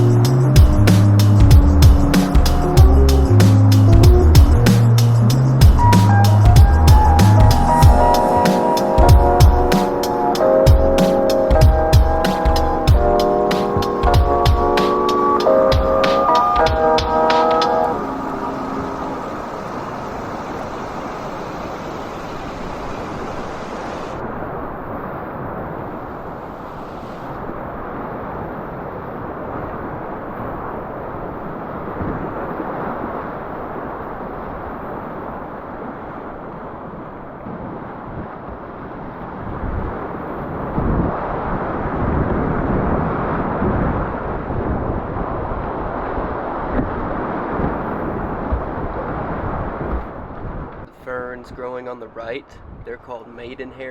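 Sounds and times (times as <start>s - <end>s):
river water rushing: 5.3s - 42.0s
wind rumble on microphone: 18.8s - 50.9s, 52.6s - 52.9s.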